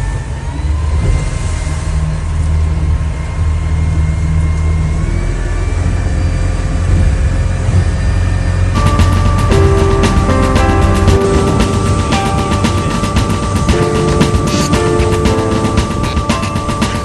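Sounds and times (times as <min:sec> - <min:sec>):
music: 0:08.8 - 0:17.0.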